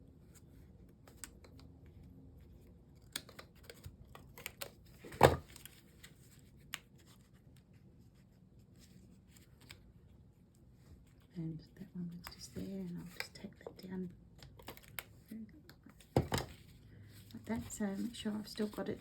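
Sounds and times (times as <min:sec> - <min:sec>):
paper handling: 0:14.4 - 0:19.0.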